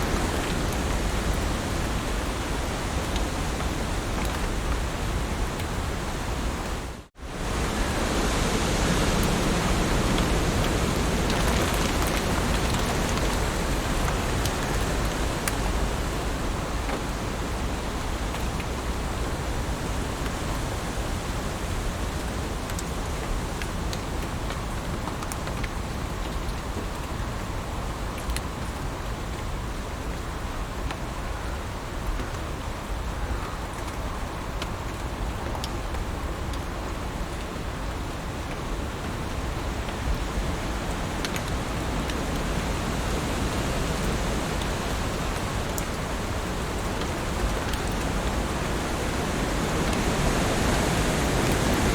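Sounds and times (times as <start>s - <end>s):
heavy rain: 0.0s - 51.9s
raindrops ticking: 9.2s - 19.1s, 38.5s - 51.9s.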